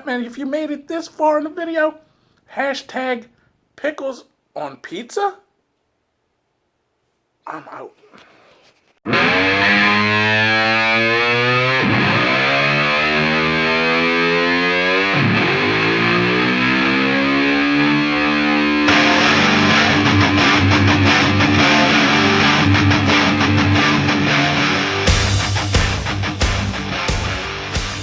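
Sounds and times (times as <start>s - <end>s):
distorted electric guitar rock: 9.1s - 28.0s.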